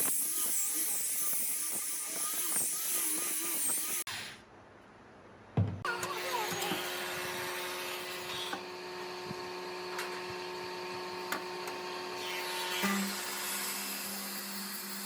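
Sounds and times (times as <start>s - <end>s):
thump: 5.6s - 5.9s
power tool motor whining: 5.9s - 15.0s.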